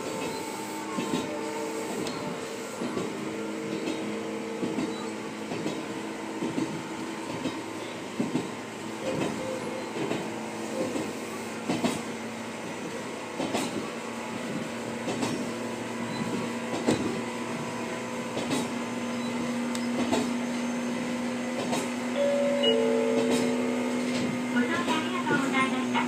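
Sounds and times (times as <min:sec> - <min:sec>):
electric train rumbling hum: 0:00.0 - 0:26.0.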